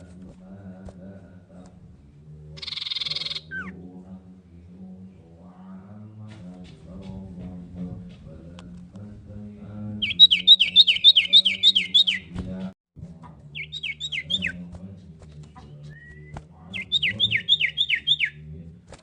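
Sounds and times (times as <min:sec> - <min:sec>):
bird down-slurred chirps: 0:02.6 - 0:03.8, 0:10.0 - 0:12.4, 0:13.5 - 0:14.6, 0:15.6 - 0:18.5.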